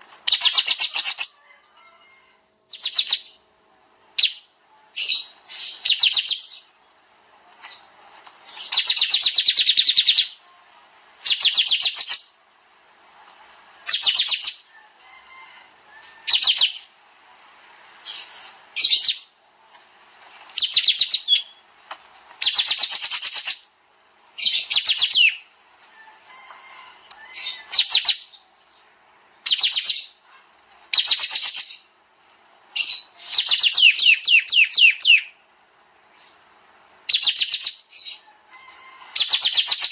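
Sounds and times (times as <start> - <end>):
songbird trilling: 0.3 - 3.5, 4.2 - 6.8, 8.5 - 10.4, 11.2 - 12.4, 13.8 - 14.7, 16.0 - 16.9, 20.6 - 21.6, 22.4 - 23.7, 24.4 - 25.4, 27.2 - 28.5, 29.4 - 30.2, 30.9 - 31.9, 32.8 - 35.4, 37.1 - 39.9.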